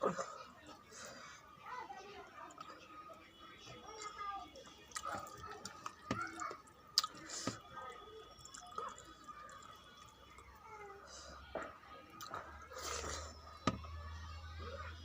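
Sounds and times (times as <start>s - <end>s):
wet chewing and mouth clicks: 4.8s - 7.6s, 8.4s - 10.5s, 12.2s - 13.3s.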